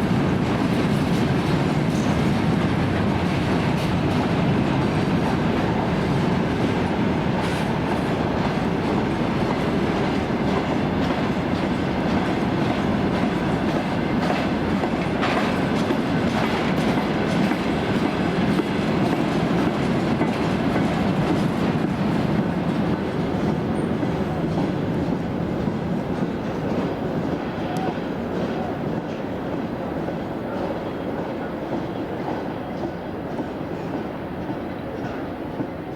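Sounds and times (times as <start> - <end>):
train wheels rumbling on rail: 0.0 - 35.9
wheels clicking over rail joints: 8.4 - 30.2.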